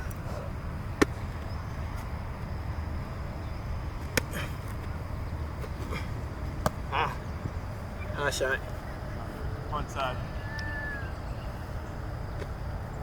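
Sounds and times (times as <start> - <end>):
football smacking hands: 6.6 - 6.8.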